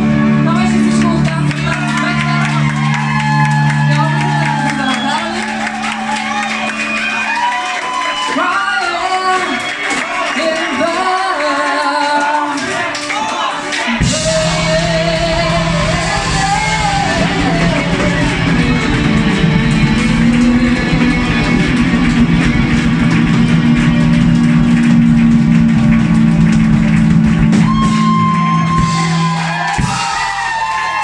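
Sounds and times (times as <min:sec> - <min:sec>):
electric guitar melody: 0:00.0 - 0:08.1, 0:14.0 - 0:29.5
rock band playing: 0:00.0 - 0:11.3, 0:12.6 - 0:31.0.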